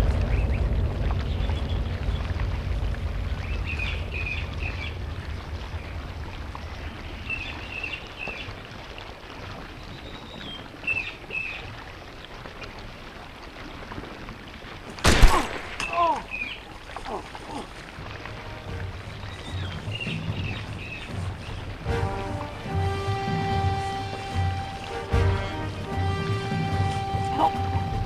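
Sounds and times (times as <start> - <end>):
birds chirping: 0.0 - 8.7, 9.6 - 11.8, 15.0 - 28.0
low rumble on microphone: 0.0 - 10.8, 17.1 - 28.0.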